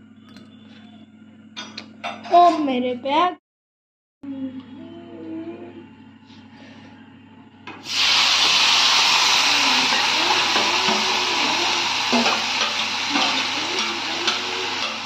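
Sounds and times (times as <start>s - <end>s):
food frying in hot oil: 7.8s - 15.0s
spoon knocking on pan: 9.9s - 15.0s.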